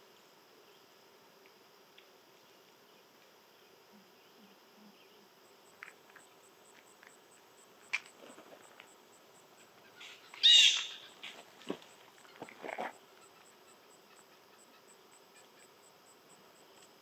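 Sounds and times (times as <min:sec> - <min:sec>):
insect chirping: 0:00.0 - 0:17.0
bird call: 0:09.8 - 0:11.4.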